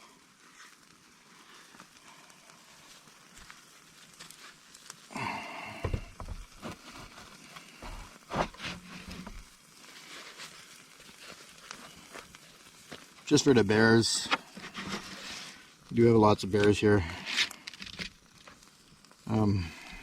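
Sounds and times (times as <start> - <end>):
campfire crackling: 0.0 - 20.0.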